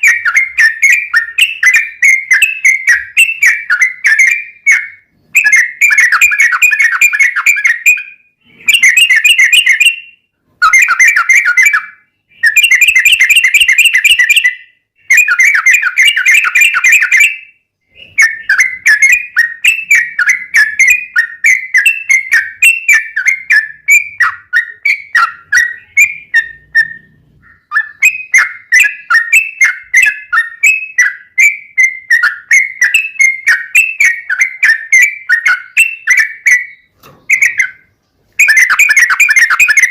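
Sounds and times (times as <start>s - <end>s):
bird whistled chirps: 0.0s - 39.9s.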